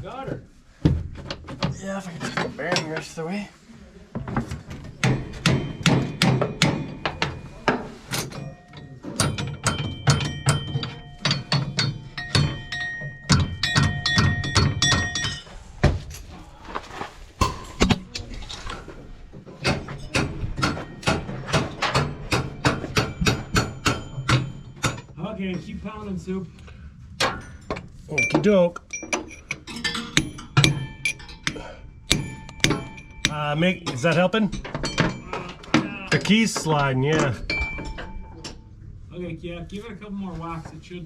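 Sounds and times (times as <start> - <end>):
hammer pounding on steel: 5.0 - 16.0, 17.4 - 18.2, 19.6 - 25.2, 29.2 - 36.1.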